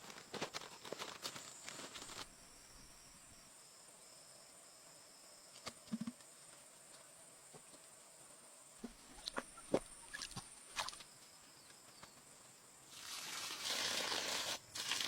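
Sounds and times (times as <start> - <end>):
scraping or rustling noise: 0.0 - 2.4.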